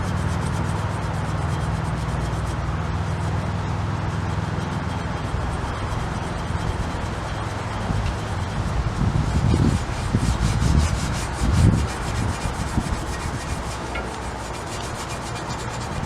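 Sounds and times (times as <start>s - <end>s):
scouring pad scrubbing metal: 9.2s - 16.0s.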